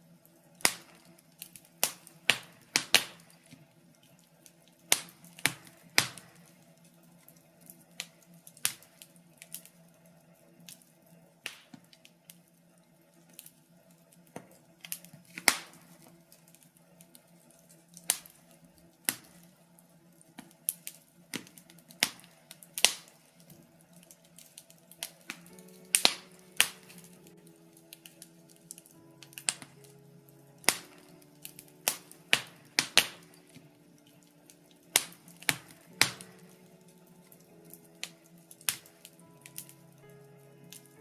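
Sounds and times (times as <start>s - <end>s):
faint steady hum: 0.0s - 41.0s
wood fire crackling and popping: 0.0s - 41.0s.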